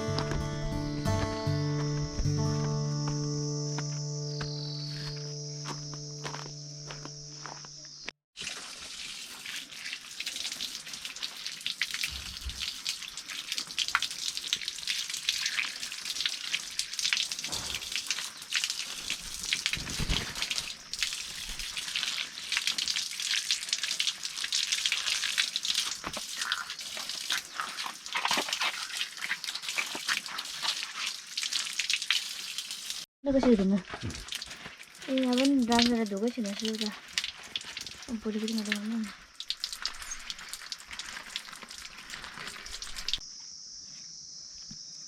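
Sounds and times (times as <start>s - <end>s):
running water splashing: 8.4s - 33.1s, 33.8s - 43.2s.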